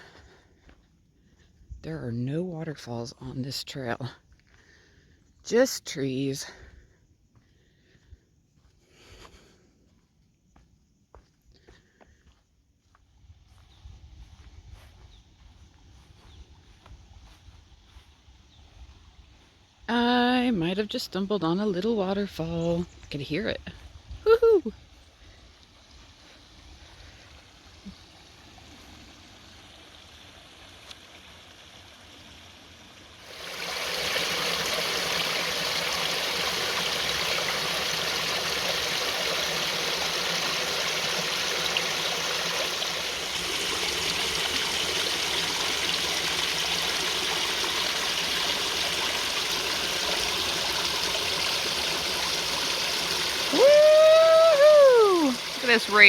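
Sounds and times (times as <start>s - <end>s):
small waterfall rushing: 24.8s - 56.0s.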